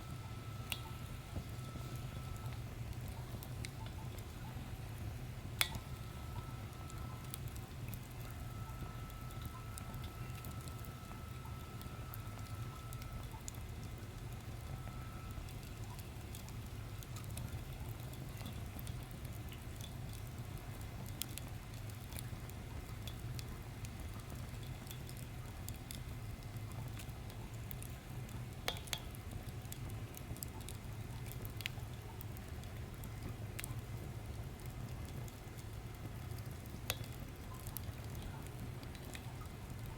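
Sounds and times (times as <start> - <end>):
low rumble of fire: 0.0 - 39.9
wood fire crackling: 0.0 - 39.9.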